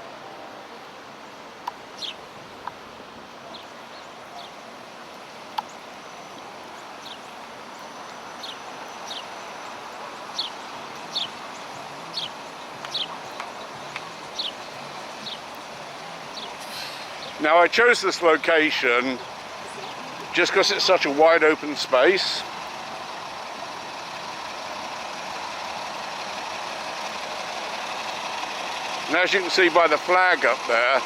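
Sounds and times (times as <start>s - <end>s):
muffled wind hiss: 0.0s - 31.0s
small songbird chirping: 1.9s - 2.2s, 3.5s - 4.7s, 5.3s - 17.4s, 19.1s - 21.0s.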